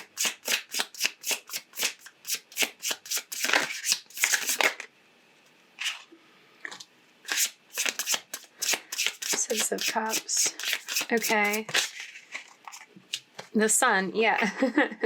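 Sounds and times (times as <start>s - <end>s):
cards being shuffled: 0.2s - 4.8s, 7.3s - 12.9s.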